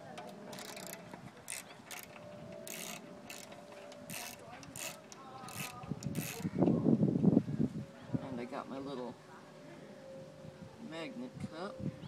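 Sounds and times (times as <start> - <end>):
ratchet wrench clicking: 0.5 - 6.5.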